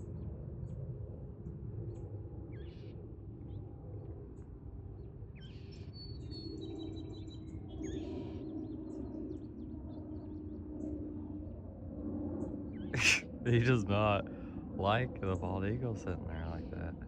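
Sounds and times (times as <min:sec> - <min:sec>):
harsh scratchy bird calls: 0:13.0 - 0:13.2.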